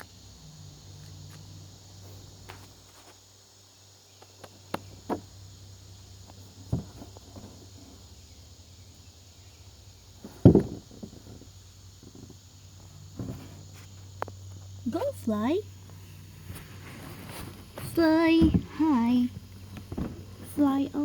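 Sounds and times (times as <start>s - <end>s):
faint low hum: 0.0s - 21.0s
soft knocks and rustles: 6.3s - 8.0s, 10.1s - 14.7s, 15.8s - 20.8s
dull thump: 6.4s - 8.0s, 10.1s - 14.7s, 16.0s - 21.0s.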